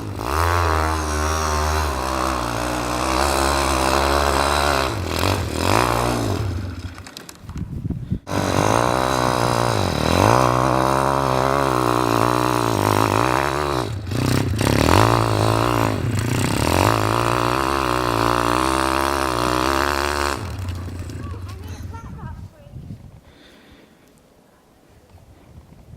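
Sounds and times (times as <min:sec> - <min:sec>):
motorbike engine revving: 0:00.0 - 0:22.0
engine pops: 0:02.9 - 0:21.9.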